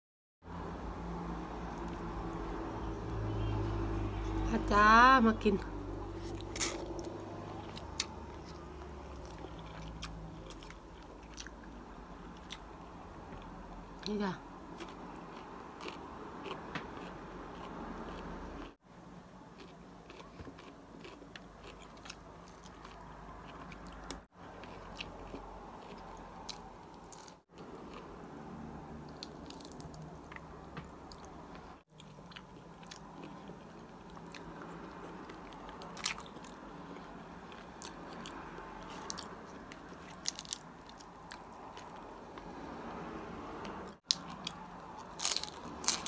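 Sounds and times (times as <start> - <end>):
person chewing crunchy vegetables: 6.2 - 11.6, 14.8 - 18.8, 19.5 - 31.3, 31.9 - 42.0, 44.0 - 46.0.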